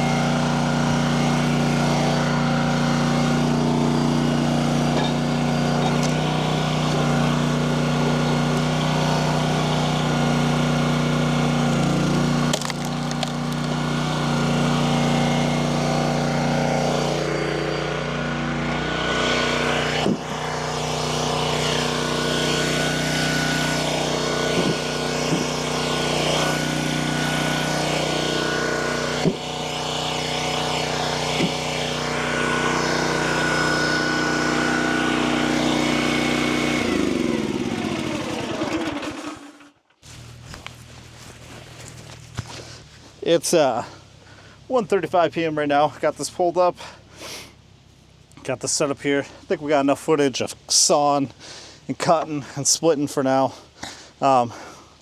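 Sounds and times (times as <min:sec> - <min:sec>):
small gasoline engine running: 0:00.0 - 0:50.0
wood cracking: 0:11.5 - 0:14.0.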